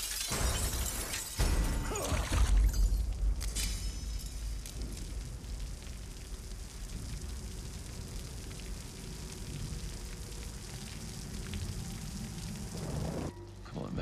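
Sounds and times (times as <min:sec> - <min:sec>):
heavy rain on pavement: 0:00.0 - 0:13.3
low rumble: 0:02.7 - 0:13.8.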